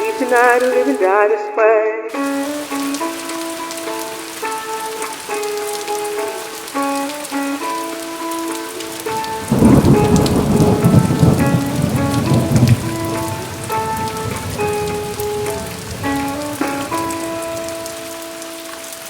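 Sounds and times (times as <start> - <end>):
steady rain: 0.0 - 1.1, 2.1 - 19.0
guitar notes: 0.0 - 19.0
thunder rumbling: 9.0 - 18.2.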